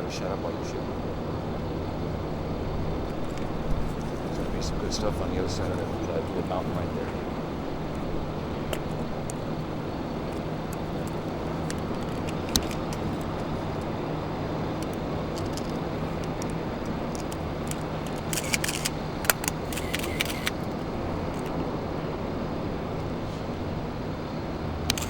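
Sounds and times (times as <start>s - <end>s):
vehicle engine and road noise: 0.0s - 25.0s
light clicks and rattles: 8.7s - 13.9s, 14.8s - 21.6s.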